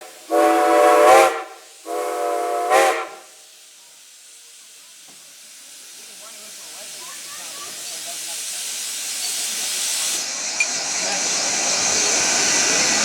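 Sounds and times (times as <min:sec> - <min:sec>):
steam locomotive whistle: 0:00.0 - 0:03.4.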